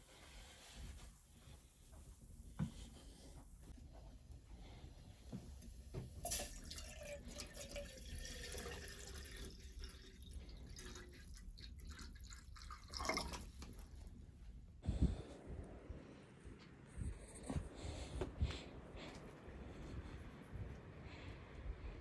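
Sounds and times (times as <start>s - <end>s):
water running and dripping: 5.9s - 14.1s.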